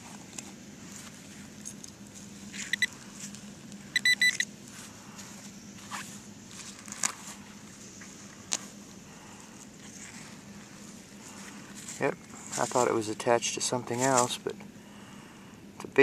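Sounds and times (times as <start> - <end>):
metal detector beeping: 2.6 - 3.0, 3.9 - 4.5.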